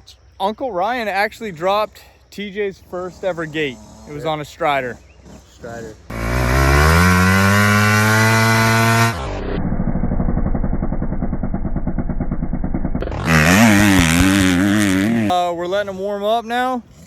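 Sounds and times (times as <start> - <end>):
dirt bike engine revving: 3.0 - 15.4.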